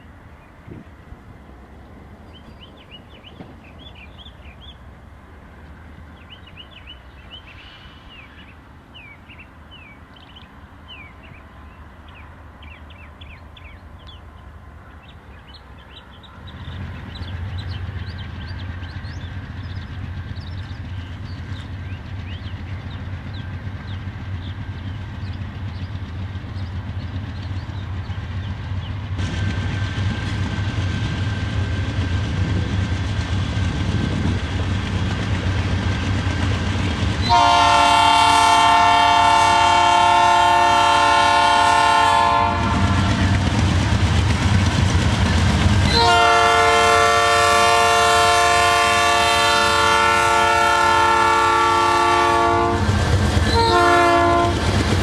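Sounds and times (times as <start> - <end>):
locomotive engine drone: 0.0 - 55.0
small birds chirping: 2.3 - 4.8, 6.2 - 29.2.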